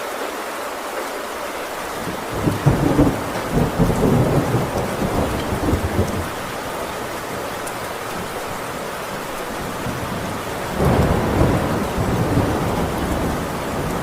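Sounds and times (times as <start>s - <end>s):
heavy rain on a tin roof: 0.0s - 14.0s
thunder rumbling: 1.9s - 14.0s.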